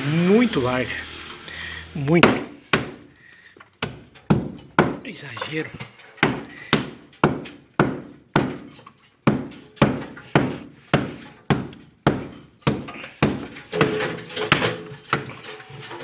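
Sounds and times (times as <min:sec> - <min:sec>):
hammer striking brick: 0:02.2 - 0:03.0, 0:03.8 - 0:05.0, 0:06.2 - 0:15.4.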